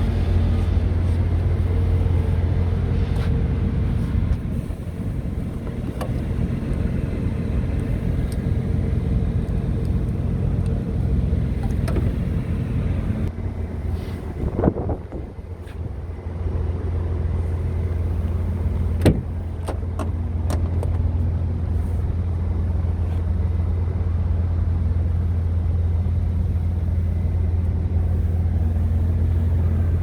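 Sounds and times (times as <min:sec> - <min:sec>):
diesel truck engine running: 0:00.0 - 0:30.0
light engine ticks: 0:05.6 - 0:12.2.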